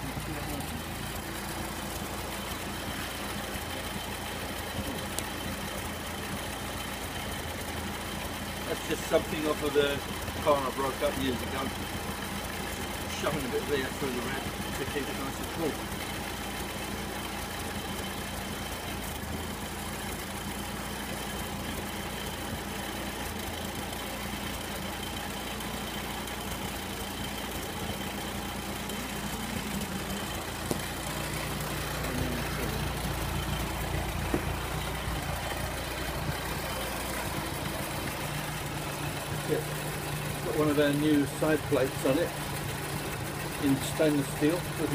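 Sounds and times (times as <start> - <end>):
car engine idling: 0.0 - 44.9
click: 30.7 - 30.9.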